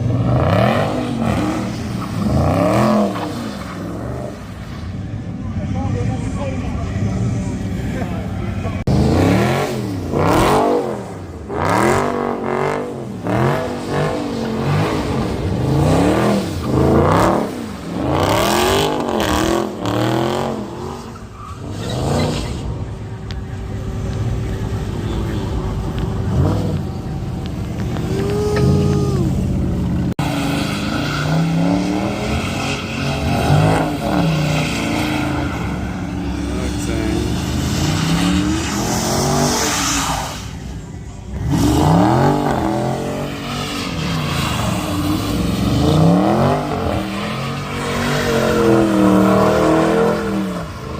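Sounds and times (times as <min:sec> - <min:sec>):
car engines revving hard: 0:00.0 - 0:50.9.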